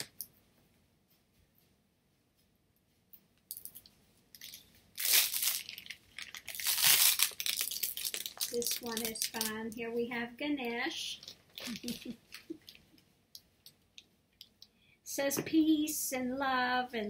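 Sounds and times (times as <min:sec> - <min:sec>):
material crinkling and rustling: 0:03.4 - 0:09.9, 0:11.1 - 0:13.0.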